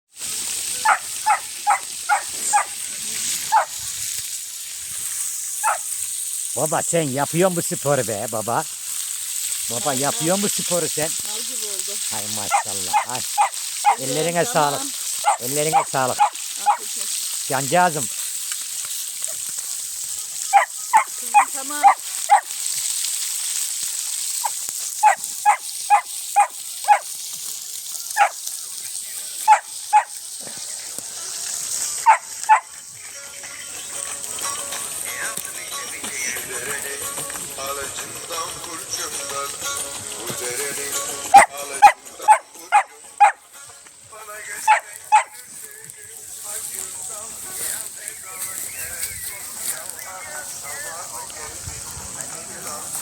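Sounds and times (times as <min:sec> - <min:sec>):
food frying: 0:00.1 - 0:53.0
steady high hiss: 0:00.1 - 0:53.0
dog barking: 0:00.8 - 0:02.8, 0:03.5 - 0:03.8, 0:05.6 - 0:05.9, 0:12.4 - 0:14.2, 0:15.2 - 0:16.9, 0:20.5 - 0:22.5, 0:24.4 - 0:27.1, 0:28.2 - 0:28.4, 0:29.4 - 0:30.2, 0:32.0 - 0:32.7, 0:41.3 - 0:43.4, 0:44.7 - 0:45.4.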